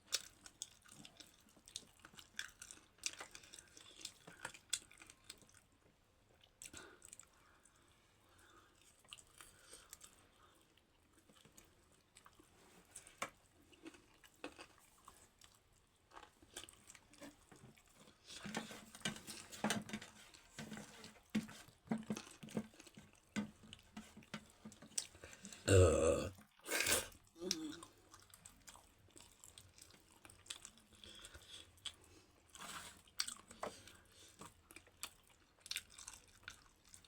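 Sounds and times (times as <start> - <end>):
wet chewing and smacking: 0.0 - 25.6, 26.4 - 37.0.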